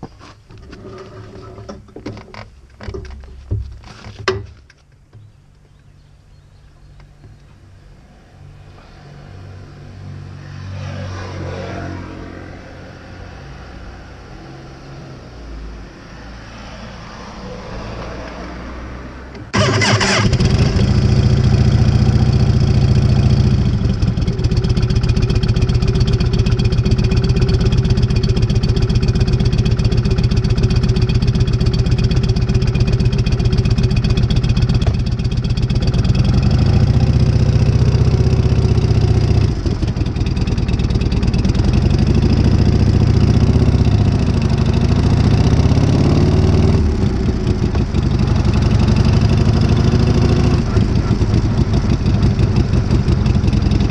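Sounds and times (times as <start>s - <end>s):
motorcycle engine idling: 19.5s - 45.8s, 46.6s - 53.9s.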